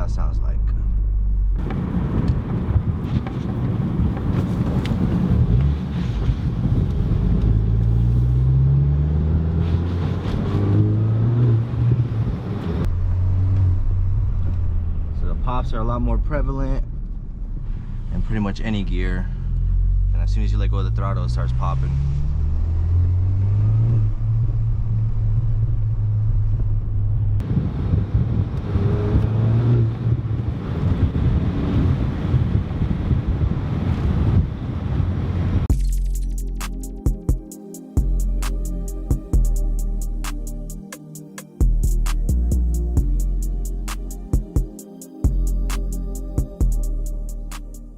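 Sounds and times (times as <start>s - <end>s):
car exhaust note: 41.6s - 47.9s.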